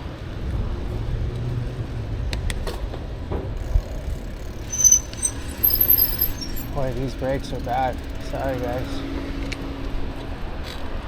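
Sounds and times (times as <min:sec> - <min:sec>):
wind and road rumble: 0:00.0 - 0:11.0
bicycle brakes squealing: 0:03.6 - 0:09.7.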